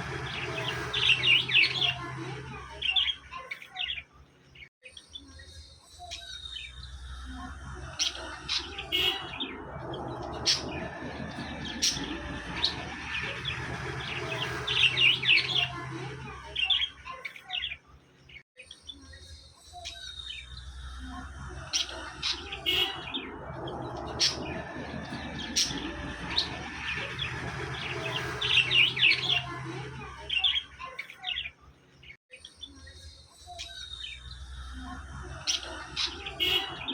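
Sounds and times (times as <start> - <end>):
low steady hum: 0.0 - 3.0, 6.8 - 16.8
budgies chirping and chattering: 0.0 - 36.9.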